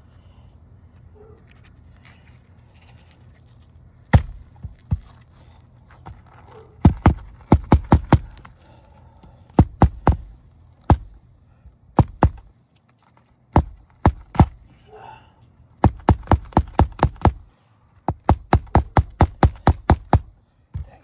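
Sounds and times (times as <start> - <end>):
hammer striking roofing nails: 4.2 - 4.4, 6.8 - 8.4, 9.6 - 10.3, 10.9 - 11.2, 12.0 - 12.5, 13.6 - 14.6, 15.8 - 17.4, 18.1 - 20.9.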